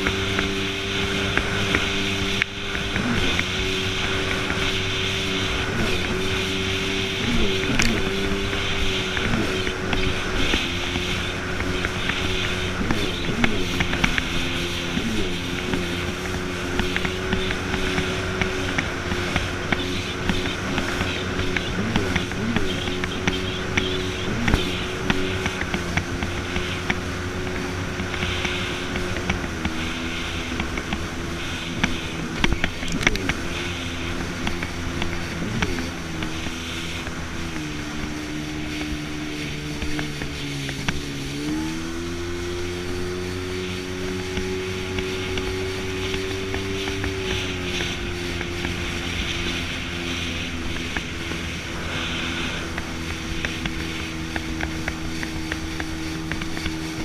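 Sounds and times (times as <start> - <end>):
jet ski engine running: 0.0 - 57.0
water rushing: 0.0 - 57.0
wind noise: 0.0 - 57.0.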